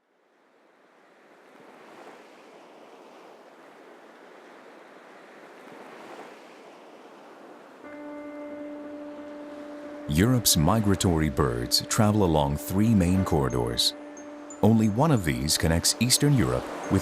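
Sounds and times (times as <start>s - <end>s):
sea surf washing in: 0.5s - 17.0s.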